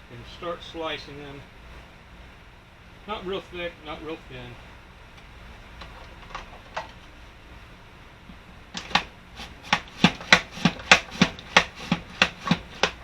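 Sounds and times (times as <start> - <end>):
apples sliced on a mandoline: 8.8 - 13.0.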